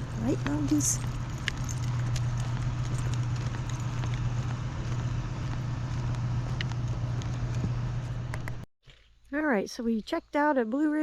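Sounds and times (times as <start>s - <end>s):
vehicle engine drone: 0.0s - 8.6s.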